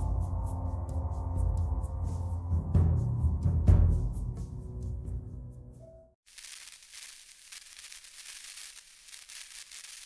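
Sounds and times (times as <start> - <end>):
music: 0.0 - 6.2
faint high-pitched hiss: 6.3 - 10.0.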